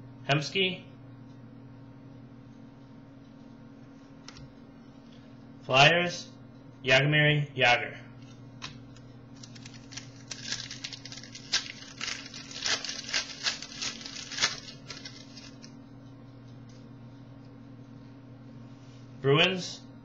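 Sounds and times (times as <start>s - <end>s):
cards and foil wrapper crinkling: 9.4s - 15.7s.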